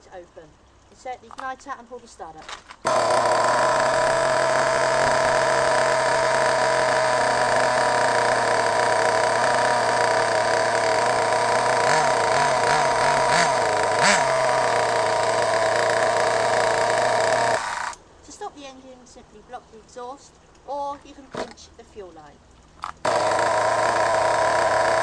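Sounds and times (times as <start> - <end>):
small engine idling with throttle blips: 2.8 - 18.0, 23.0 - 25.0.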